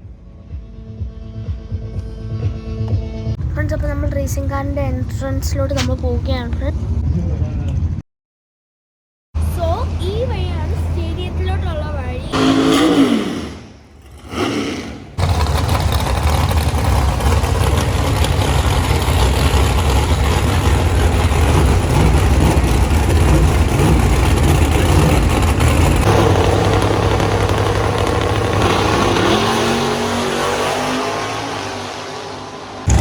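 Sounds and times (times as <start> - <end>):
car engines rumbling: 3.4 - 8.0, 9.4 - 33.0
engine revving up: 9.6 - 33.0.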